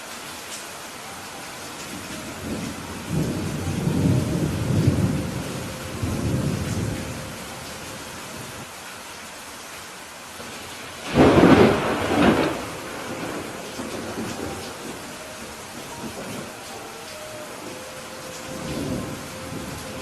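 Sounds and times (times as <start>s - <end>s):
rain hissing: 0.0s - 20.0s
thunder rumbling: 1.8s - 8.6s, 11.0s - 20.0s.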